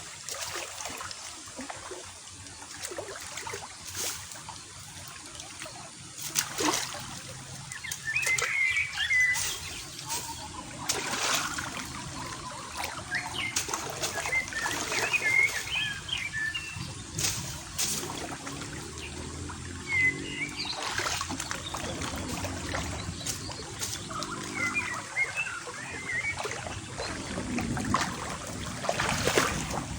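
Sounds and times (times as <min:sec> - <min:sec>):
water splashing and trickling: 0:00.0 - 0:29.9
small birds chirping: 0:07.4 - 0:27.6.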